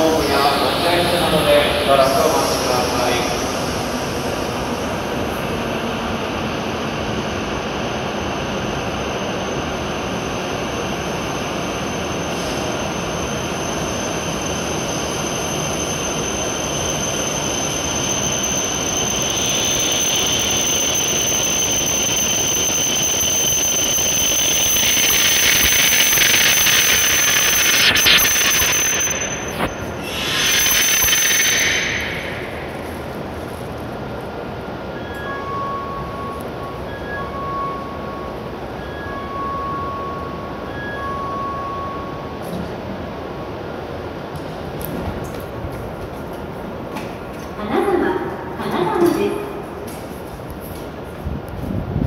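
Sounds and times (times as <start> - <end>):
train running with high whine: 0.0 - 52.0
train brake hiss: 30.0 - 33.4.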